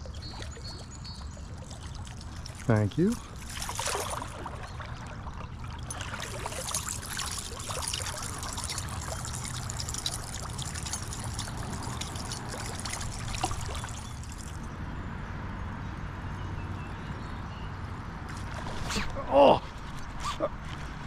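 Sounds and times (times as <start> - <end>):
water drips: 0.0 - 14.7
creek water trickling and splashing: 0.0 - 14.8, 18.3 - 20.1.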